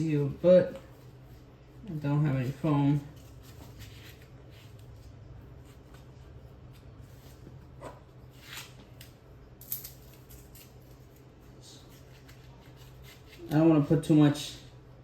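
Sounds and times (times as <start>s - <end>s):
steady low hum: 0.0s - 15.0s
soft scrapes and rustles: 0.8s - 8.8s.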